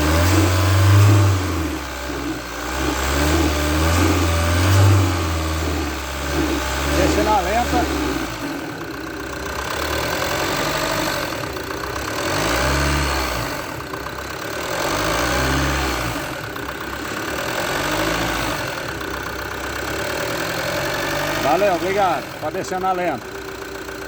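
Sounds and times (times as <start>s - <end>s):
diesel engine clattering: 0.0s - 24.0s.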